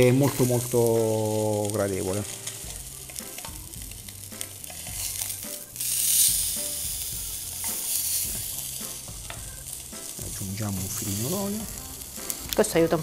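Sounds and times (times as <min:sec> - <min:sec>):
tongs turning food: 0:00.0 - 0:12.6
fish sizzling in a hot pan: 0:00.0 - 0:13.0.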